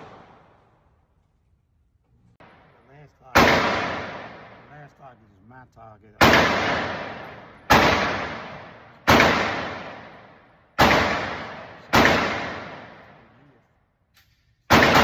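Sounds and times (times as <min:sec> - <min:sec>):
echoing gunshots: 0:00.0 - 0:00.8, 0:02.4 - 0:04.9, 0:06.2 - 0:13.5, 0:14.7 - 0:15.0.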